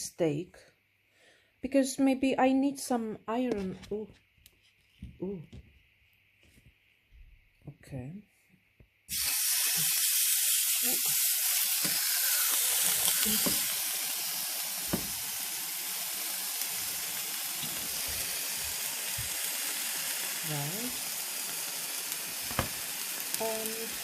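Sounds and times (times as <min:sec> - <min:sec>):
steak sizzling in a frying pan: 0:09.1 - 0:24.0.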